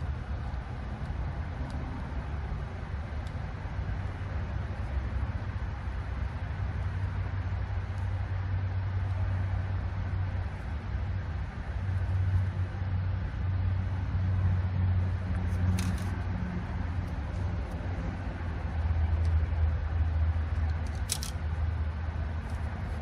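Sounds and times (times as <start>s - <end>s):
low mechanical drone: 0.0s - 23.0s
rattle of clicks: 15.6s - 16.2s, 20.7s - 21.4s.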